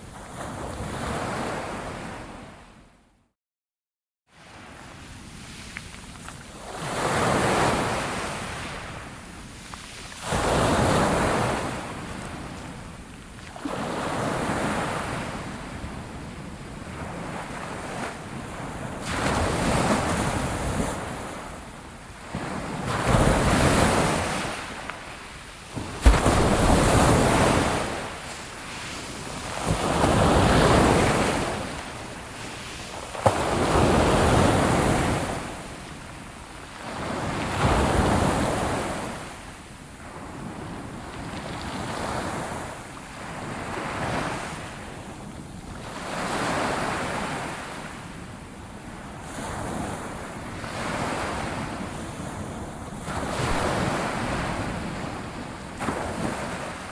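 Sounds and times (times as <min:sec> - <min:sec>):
sea waves breaking on shore: 0:04.4 - 0:45.0, 0:49.0 - 0:56.9
sharp crack: 0:26.0 - 0:26.8.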